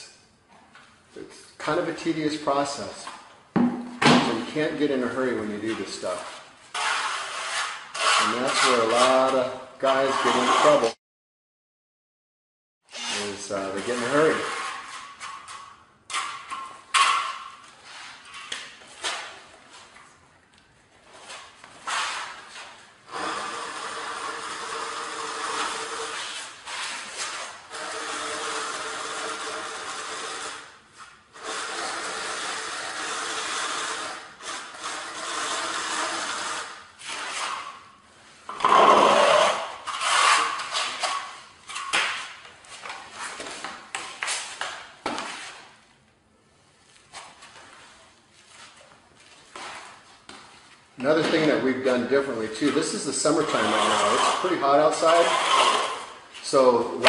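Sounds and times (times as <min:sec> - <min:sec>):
power tool running: 0:23.1 - 0:26.2, 0:31.4 - 0:36.8
scraping: 0:38.5 - 0:45.7.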